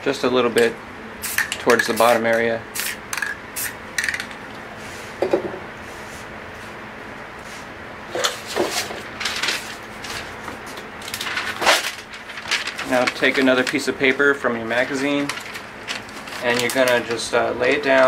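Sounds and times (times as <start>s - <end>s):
spray paint can hissing: 2.8s - 4.2s.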